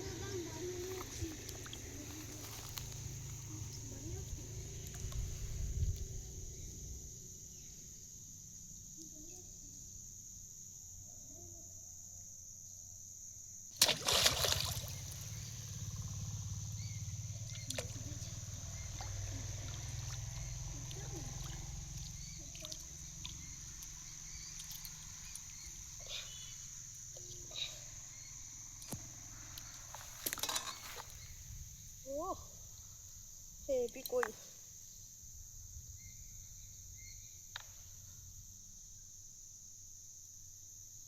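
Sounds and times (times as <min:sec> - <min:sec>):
crickets droning: 0:00.0 - 0:41.0
water splashing and sloshing: 0:13.8 - 0:16.1, 0:19.0 - 0:23.9.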